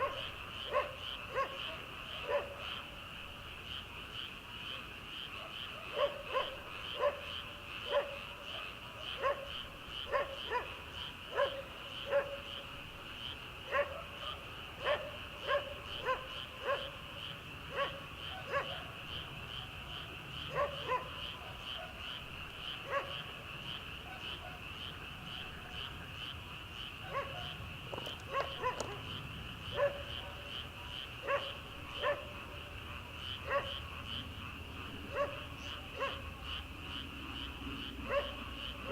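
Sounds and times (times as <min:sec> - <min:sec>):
distant dog barking: 0:00.0 - 0:02.8, 0:05.4 - 0:12.6, 0:13.7 - 0:17.1, 0:17.7 - 0:19.2, 0:20.4 - 0:23.3, 0:24.0 - 0:24.7, 0:27.0 - 0:29.1, 0:29.7 - 0:30.5, 0:31.2 - 0:32.6, 0:33.4 - 0:33.9, 0:35.1 - 0:36.3, 0:38.0 - 0:38.9
frogs trilling: 0:00.0 - 0:38.9.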